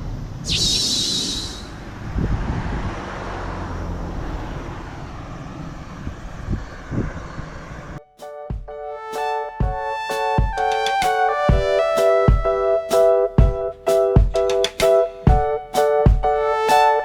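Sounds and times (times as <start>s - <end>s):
vehicle engine rumbling: 0.0s - 8.0s
high hiss: 0.4s - 1.9s
thin high squeal: 0.5s - 1.8s.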